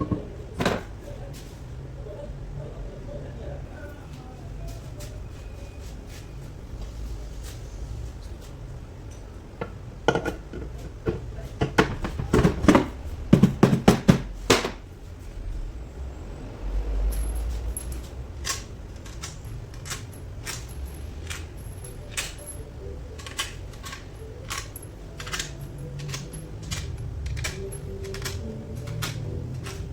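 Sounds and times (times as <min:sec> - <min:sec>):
metal tools clanking: 0:00.0 - 0:01.0, 0:17.0 - 0:29.9.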